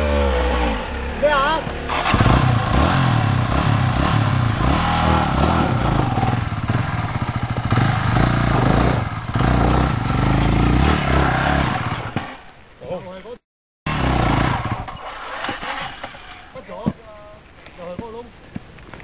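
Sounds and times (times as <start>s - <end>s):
dirt bike engine revving: 0.0s - 12.4s, 13.9s - 16.4s.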